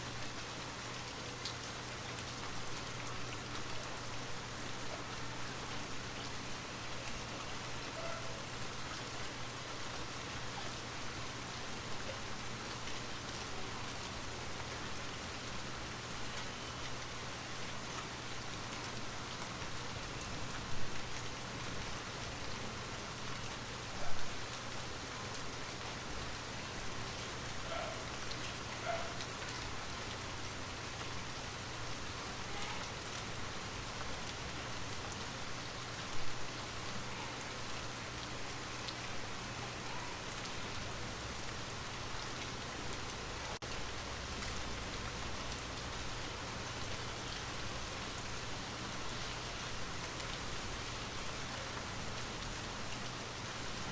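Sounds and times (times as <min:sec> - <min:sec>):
rain falling: 0:00.0 - 0:53.9.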